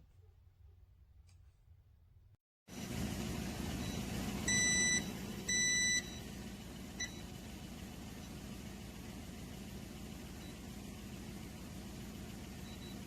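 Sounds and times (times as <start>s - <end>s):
cooling fan whirring and humming: 2.7s - 13.0s.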